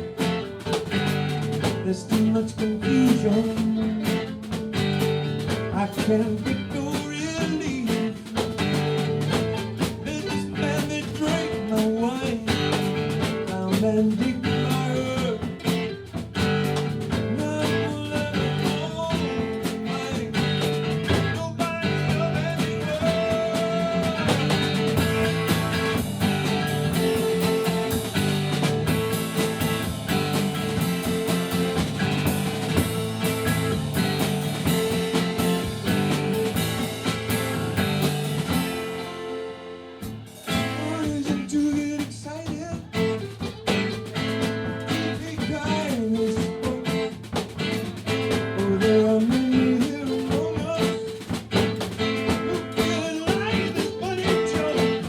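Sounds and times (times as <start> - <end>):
live band guitar and drums: 0.0 - 55.0.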